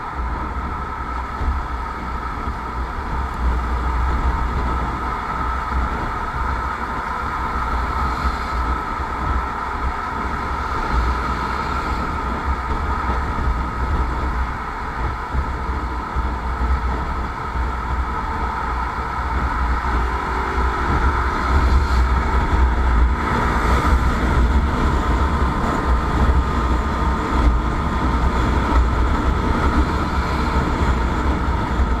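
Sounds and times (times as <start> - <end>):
wind rumble on microphone: 0.0 - 32.0
motorcycle engine running: 16.6 - 26.4.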